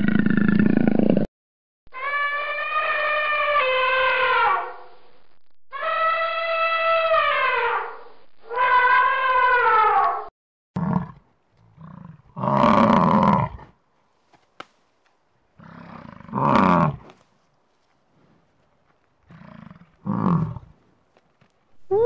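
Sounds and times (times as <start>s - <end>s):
elephant trumpeting: 2.0s - 4.7s.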